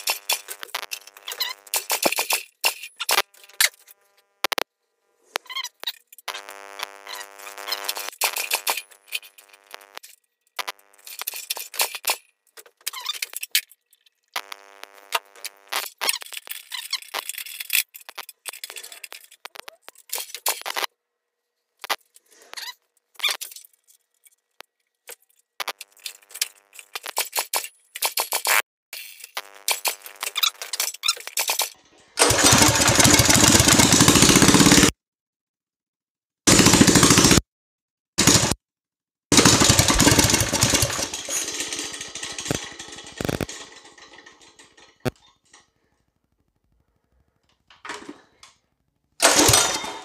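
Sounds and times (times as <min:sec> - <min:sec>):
mini bike engine winding down: 0:00.0 - 0:02.4, 0:31.4 - 0:34.9, 0:36.5 - 0:37.4, 0:38.2 - 0:38.6, 0:39.3 - 0:45.1, 0:49.2 - 0:50.0.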